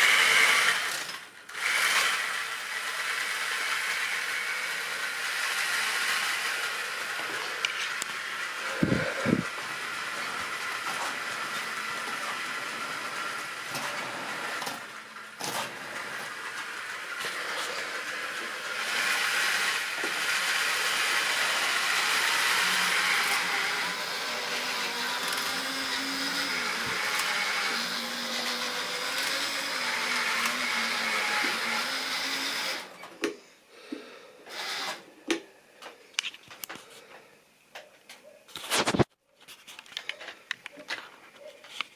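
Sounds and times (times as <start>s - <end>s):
model train motor whirring: 0.0s - 33.0s.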